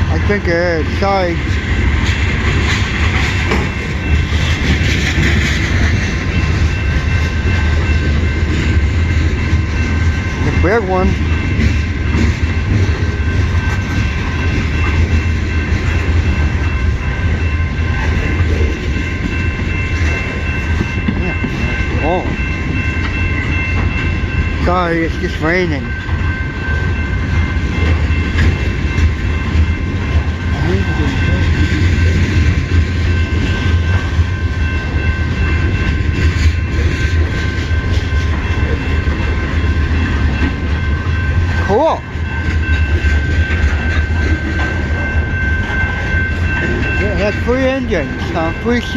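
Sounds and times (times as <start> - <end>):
freight train rumbling on rails: 0.0 - 48.9
high ringing tone: 25.8 - 48.9.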